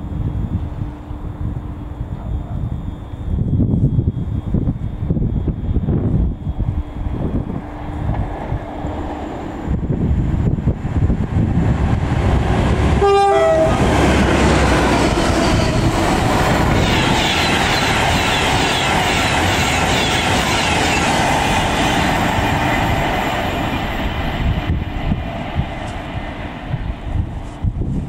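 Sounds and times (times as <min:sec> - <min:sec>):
electric train passing: 0:00.0 - 0:28.0
two-tone train horn: 0:13.0 - 0:14.0, 0:16.6 - 0:18.9.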